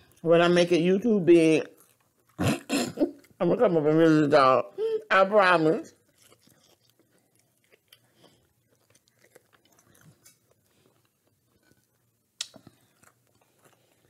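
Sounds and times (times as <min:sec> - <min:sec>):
chewing with wet mouth clicks: 0:06.0 - 0:14.0
sharp mouth click: 0:12.4 - 0:12.6.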